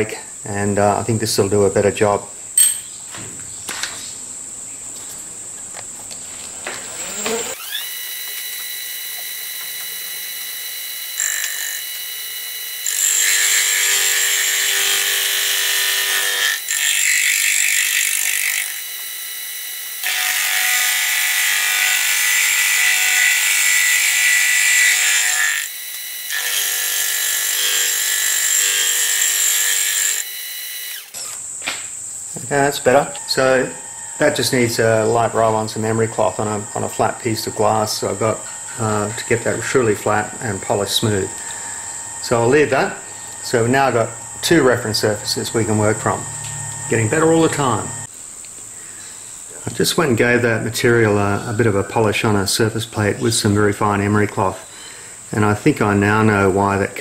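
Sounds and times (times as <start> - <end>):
milling spindle whine: 6.6 - 31.6, 32.2 - 48.1
gritty metal cutting noise: 6.8 - 31.6, 32.3 - 48.1.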